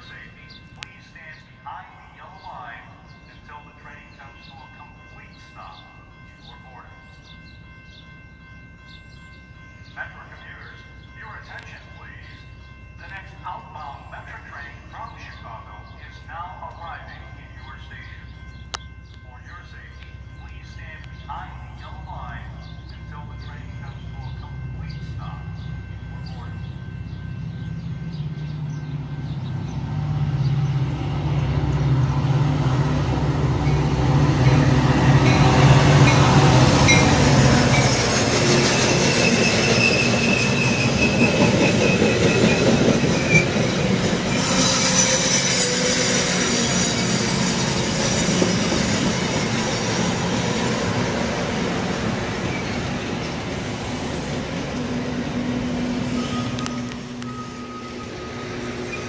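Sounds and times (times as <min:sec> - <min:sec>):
diesel locomotive drone: 0:00.0 - 0:59.0
train cars rumbling: 0:00.0 - 0:59.0
wheel and rail squeal: 0:33.6 - 0:51.2, 0:52.3 - 0:54.3, 0:56.0 - 0:59.0.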